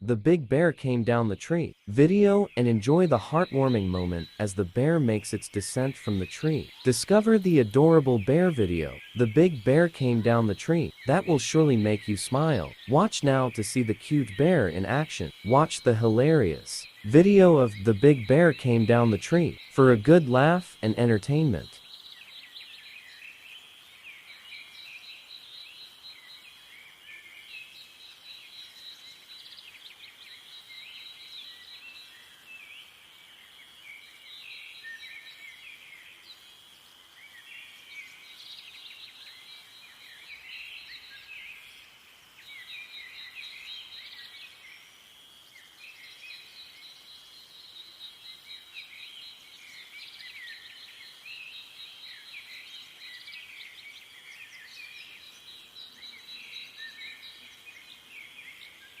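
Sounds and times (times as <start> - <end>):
small birds chirping: 0.0 - 59.0
fast high bird trill: 1.1 - 21.8.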